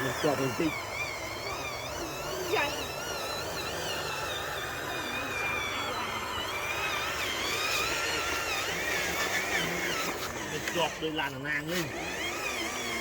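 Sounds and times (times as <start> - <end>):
toy truck electric motor whining: 0.0 - 13.0.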